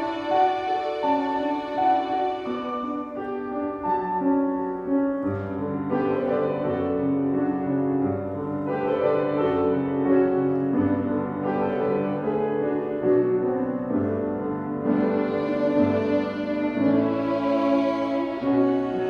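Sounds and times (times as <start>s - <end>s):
violins playing: 0.0s - 3.8s, 14.8s - 19.0s
piano playing: 0.0s - 19.0s.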